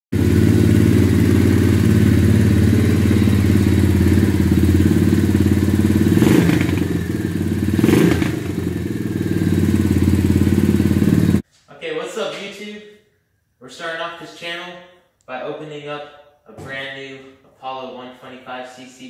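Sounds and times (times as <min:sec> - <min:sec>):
dirt bike engine running: 0:00.1 - 0:11.4.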